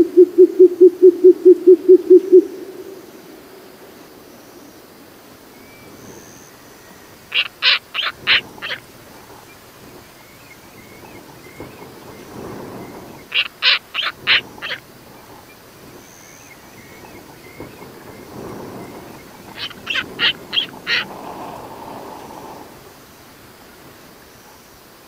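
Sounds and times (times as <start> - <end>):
owl calling: 5.6 - 22.9.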